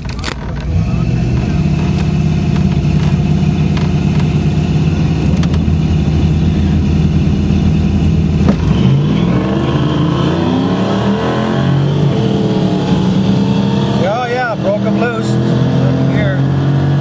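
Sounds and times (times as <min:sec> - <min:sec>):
car engine revving: 0:00.0 - 0:17.0
sharp thump: 0:08.4 - 0:08.7.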